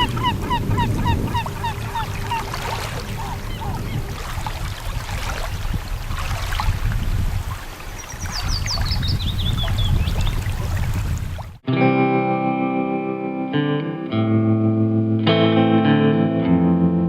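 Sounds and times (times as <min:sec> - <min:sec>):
bird calls: 0:00.0 - 0:04.8, 0:07.5 - 0:10.8
low rumble of wind and water: 0:00.0 - 0:11.6.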